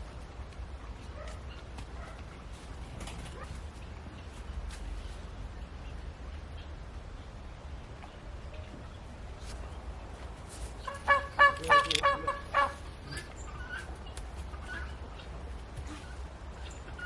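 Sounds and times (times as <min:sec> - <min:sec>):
animal calling: 0:10.9 - 0:13.9.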